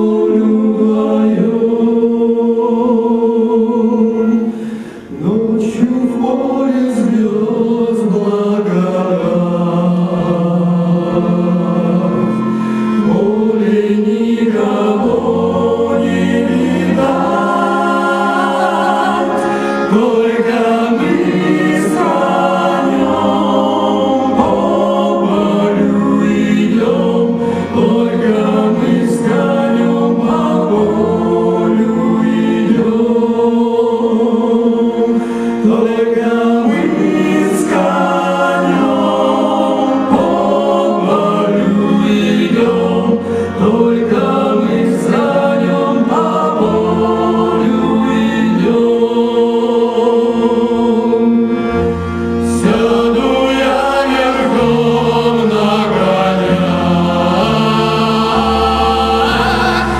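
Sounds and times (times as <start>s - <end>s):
choir singing in harmony: 0.0s - 59.9s.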